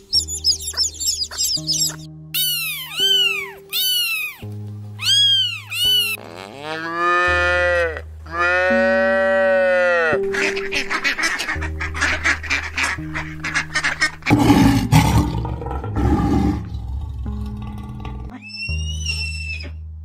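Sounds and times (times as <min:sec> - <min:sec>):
chicks peeping: 0:00.0 - 0:06.2
background music: 0:00.0 - 0:20.0
kitten mewing: 0:02.4 - 0:06.9
cow mooing: 0:05.8 - 0:10.3.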